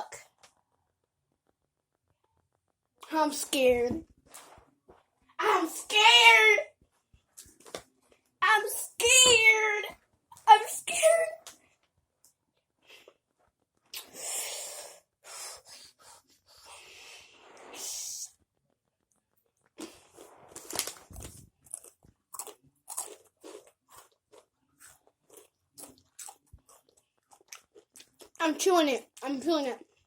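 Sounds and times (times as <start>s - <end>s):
person crunching chips: 19.8s - 28.4s.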